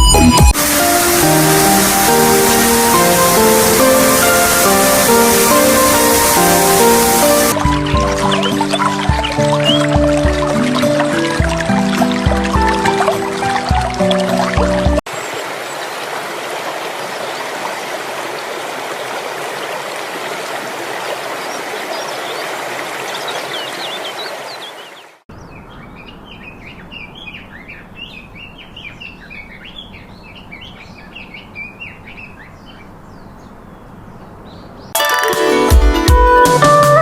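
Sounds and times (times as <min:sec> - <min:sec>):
rushing water: 0:00.5 - 0:25.3
small birds chirping: 0:02.2 - 0:13.2, 0:21.1 - 0:35.0.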